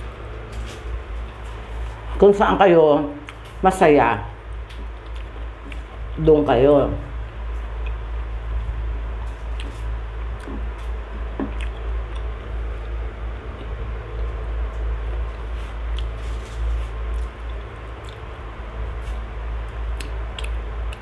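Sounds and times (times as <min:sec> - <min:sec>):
steady low hum: 0:00.0 - 0:21.0
wet chewing and lip smacks: 0:04.6 - 0:06.2, 0:09.5 - 0:10.8, 0:11.5 - 0:14.3, 0:17.1 - 0:18.4, 0:20.0 - 0:21.0.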